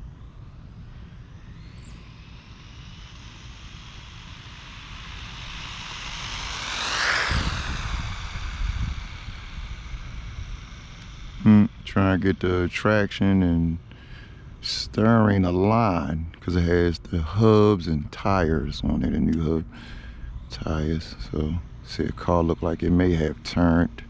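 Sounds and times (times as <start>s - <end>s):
toy car motor whining past: 0.0s - 12.7s
low rumble: 0.0s - 24.0s.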